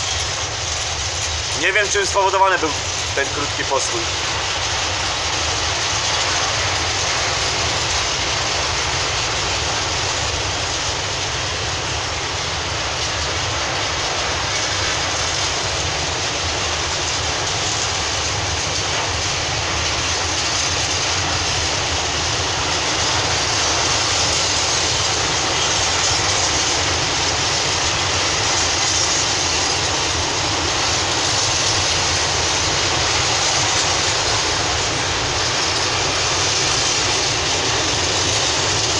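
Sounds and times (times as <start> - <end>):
train wheels on track: 0.0 - 38.9.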